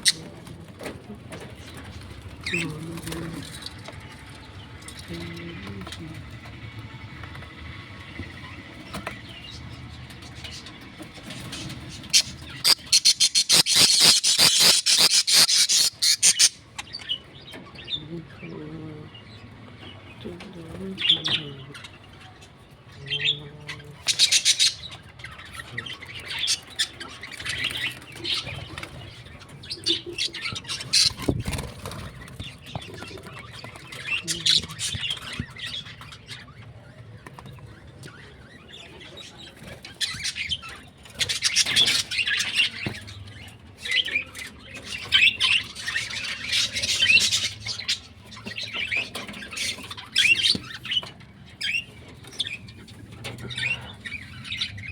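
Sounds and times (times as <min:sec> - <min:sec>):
birds chirping and squawking: 0:00.0 - 0:54.9
wings flapping and rustling: 0:27.3 - 0:34.1.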